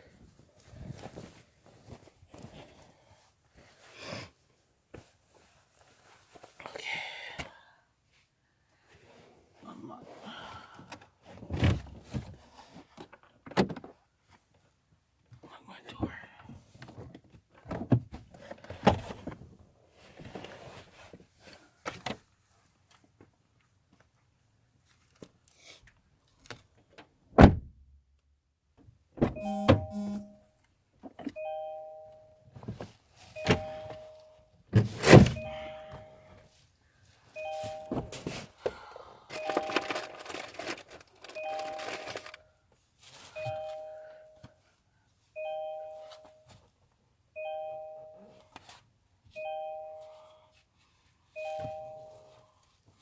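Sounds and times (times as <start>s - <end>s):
rustling and clattering of objects: 0.0s - 6.7s, 10.8s - 14.8s, 16.5s - 25.5s, 32.5s - 44.7s
car warning chime dinging: 29.4s - 30.5s, 31.4s - 32.5s, 33.4s - 34.6s, 35.3s - 36.4s, 37.4s - 38.4s, 39.3s - 40.2s, 41.4s - 42.3s, 43.4s - 44.5s, 45.4s - 46.5s, 47.4s - 48.4s, 49.3s - 50.3s, 51.4s - 52.4s
rustling: 39.3s - 44.0s.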